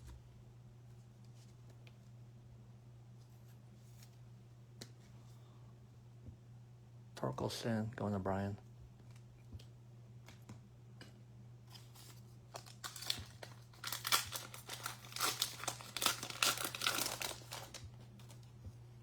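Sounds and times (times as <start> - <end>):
foil wrapper tearing and crinkling: 11.7 - 18.4.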